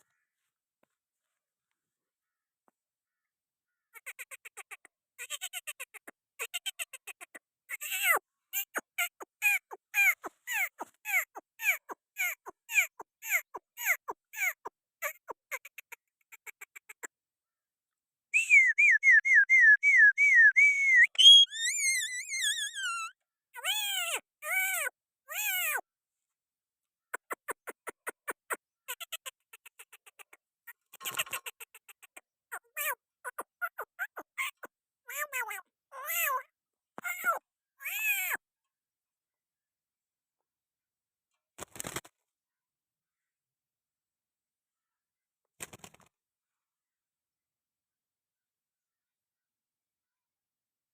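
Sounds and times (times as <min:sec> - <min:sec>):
parrot chirping: 0:18.4 - 0:23.1
parrot whistling: 0:18.4 - 0:23.1
parrot chirping and calling: 0:21.0 - 0:23.1.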